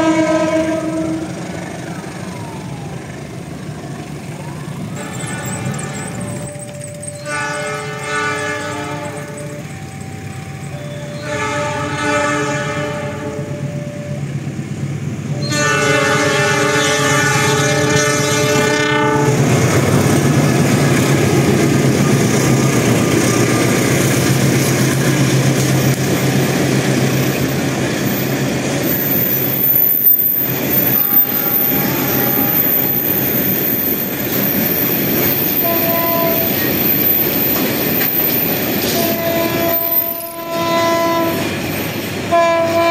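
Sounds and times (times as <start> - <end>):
train horn blasts: 0.0 - 1.5, 4.9 - 6.5, 7.1 - 14.2, 15.3 - 19.6, 30.7 - 33.2, 35.5 - 36.8, 38.8 - 41.6, 42.2 - 42.9
train wheels rumbling on rails: 0.0 - 42.9.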